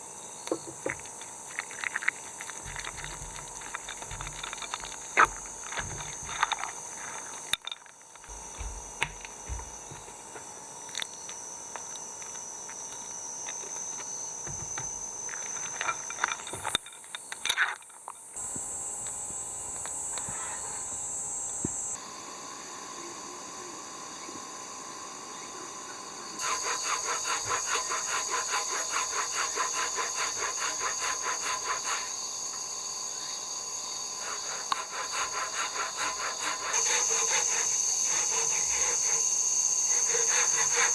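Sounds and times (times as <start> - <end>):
hand sawing wood: 2.6 - 7.4, 8.2 - 10.3, 26.4 - 32.2, 34.2 - 40.9
steady high hiss: 18.4 - 40.9.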